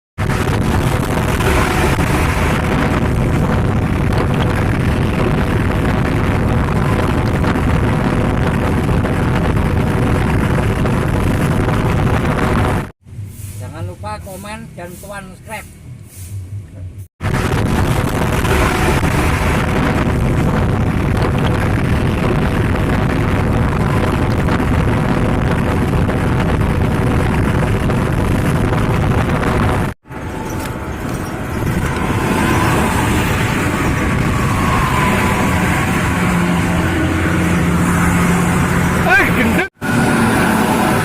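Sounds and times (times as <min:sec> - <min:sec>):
bus or truck passing alongside: 0:00.2 - 0:09.6, 0:13.0 - 0:20.8, 0:30.0 - 0:41.0
heavy vehicle engine and road noise: 0:00.2 - 0:41.0.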